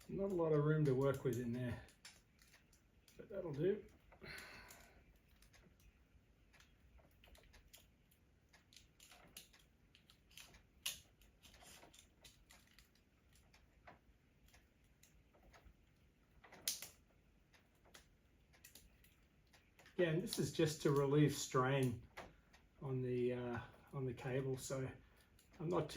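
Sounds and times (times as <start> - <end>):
metal clamps and tools clicking: 8.5 - 13.4.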